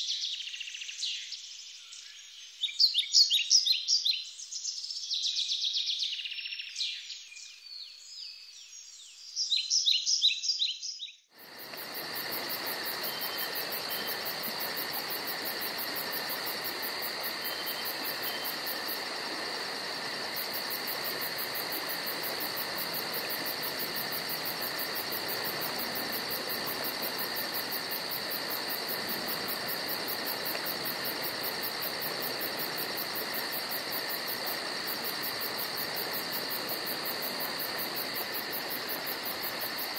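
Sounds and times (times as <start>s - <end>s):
insect chorus pulsing trill: 11.4s - 39.9s.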